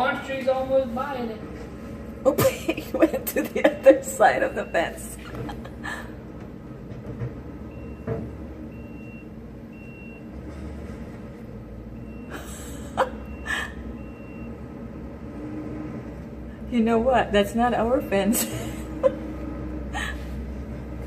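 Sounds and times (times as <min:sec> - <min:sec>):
backup alarm beeping: 0:03.4 - 0:05.6, 0:07.6 - 0:10.4, 0:11.9 - 0:14.8.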